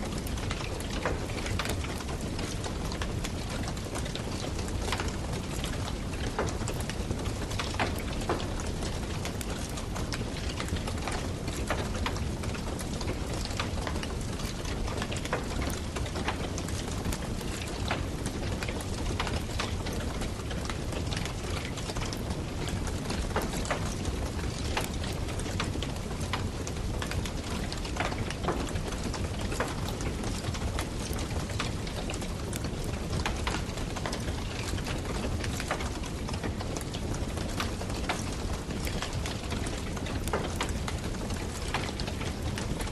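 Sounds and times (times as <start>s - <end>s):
low rumble of flame: 0.0s - 42.9s
campfire crackling and popping: 0.1s - 42.9s.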